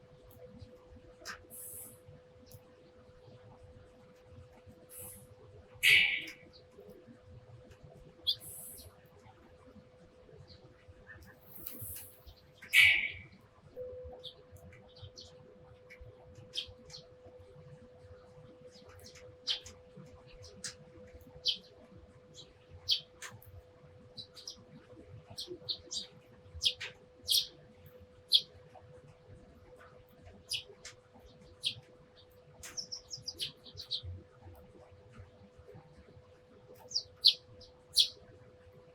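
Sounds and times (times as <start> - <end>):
sparrows chirping: 1.5 - 2.0, 4.9 - 5.2, 5.8 - 6.5, 8.3 - 8.9, 11.5 - 13.4, 15.9 - 17.1, 18.7 - 23.4, 24.2 - 24.6, 25.3 - 27.6, 28.2 - 28.5, 30.2 - 34.1, 36.7 - 38.2.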